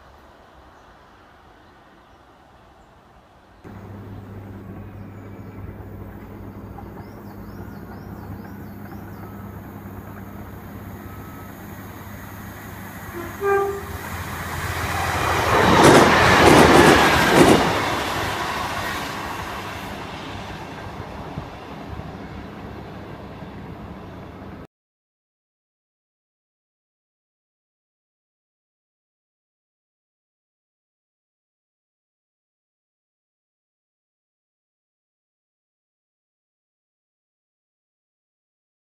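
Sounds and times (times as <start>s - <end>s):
train passing: 0.0s - 24.7s
low steady hum: 3.7s - 12.8s
wheels clacking over rail joints: 3.7s - 24.6s
train horn toot: 11.0s - 15.6s.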